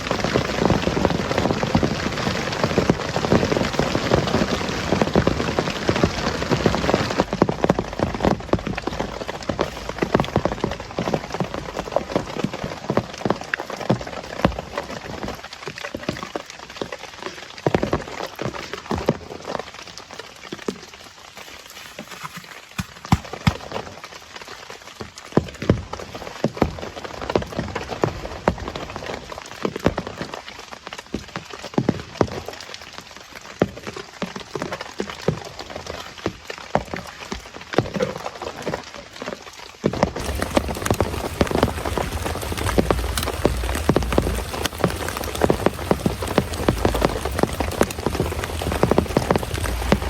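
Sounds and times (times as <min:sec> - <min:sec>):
heavy rain falling: 0:00.0 - 0:50.0
low rumbling noise: 0:40.2 - 0:50.0.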